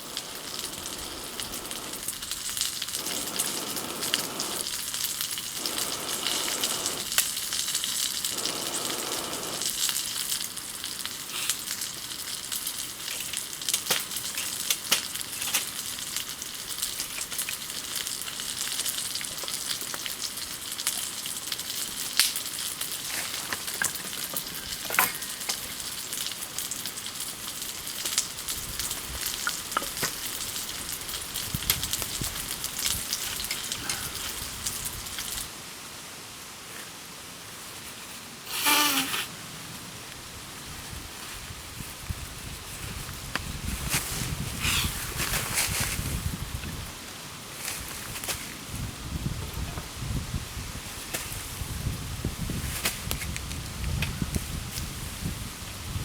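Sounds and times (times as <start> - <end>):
fire crackling pops: 0.0 - 35.5
campfire hissing: 0.0 - 56.0.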